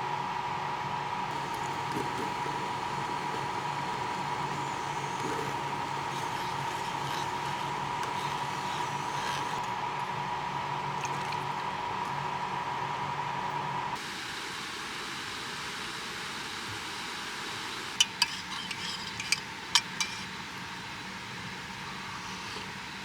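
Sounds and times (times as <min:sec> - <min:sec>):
dishes clinking: 0:18.0 - 0:20.3.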